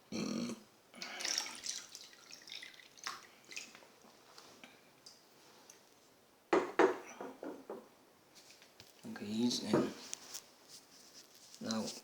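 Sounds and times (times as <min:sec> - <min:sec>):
water drips and splashes: 0:01.0 - 0:04.2
water pouring: 0:01.0 - 0:04.2.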